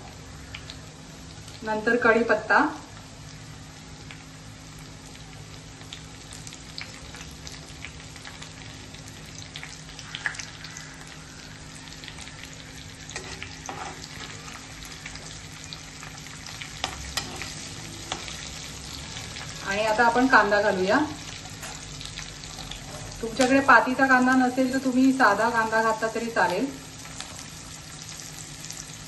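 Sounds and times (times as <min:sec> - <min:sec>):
garlic sizzling in hot oil: 0:00.0 - 0:29.0
spatula scraping pan: 0:13.1 - 0:14.4, 0:16.8 - 0:18.3.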